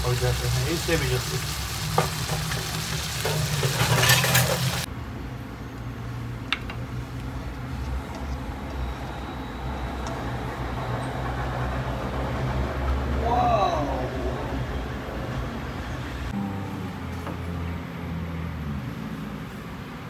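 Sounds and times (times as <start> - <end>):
food sizzling in a wok: 0.0 - 4.9.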